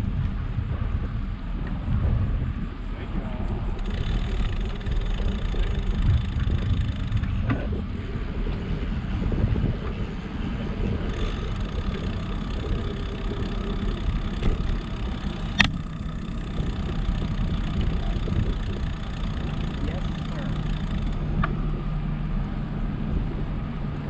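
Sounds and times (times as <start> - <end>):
wind and road noise: 0.0 - 24.0
sharp click: 15.5 - 15.8.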